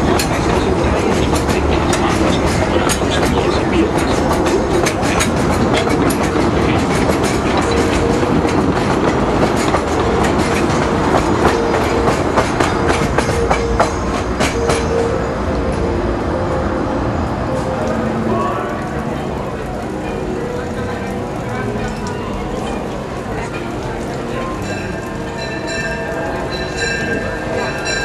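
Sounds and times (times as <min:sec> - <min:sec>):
train wheels clattering over rail joints: 0:00.0 - 0:15.2.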